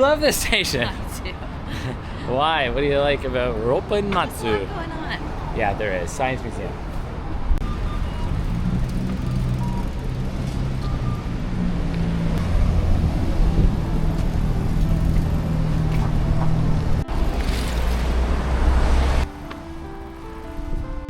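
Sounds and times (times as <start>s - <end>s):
vehicle engine humming: 4.2s - 21.0s.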